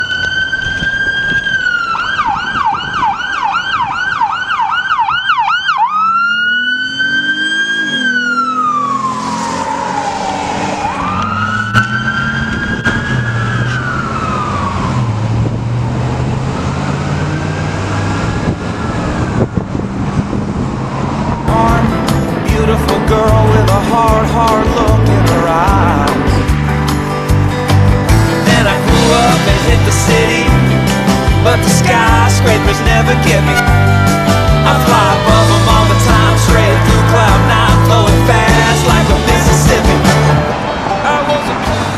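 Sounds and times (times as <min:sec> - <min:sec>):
police siren yelp and wail: 0:00.0 - 0:21.9, 0:32.0 - 0:40.9
car engine: 0:05.5 - 0:41.9.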